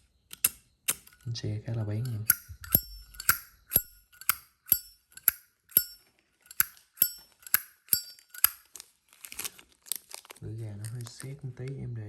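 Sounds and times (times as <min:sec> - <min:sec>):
lighter lid clinking open and shut: 0:00.0 - 0:01.3, 0:02.0 - 0:08.6.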